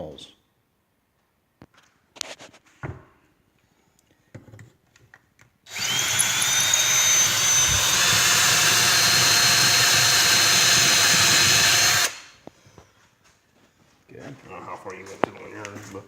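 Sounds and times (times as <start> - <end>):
power drill whining: 5.7 - 12.5.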